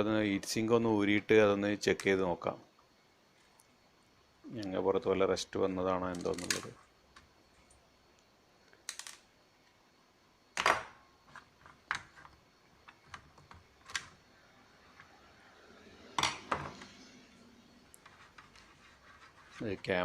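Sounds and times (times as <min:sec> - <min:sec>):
small objects clicking and knocking: 0:06.1 - 0:07.8, 0:08.7 - 0:09.3.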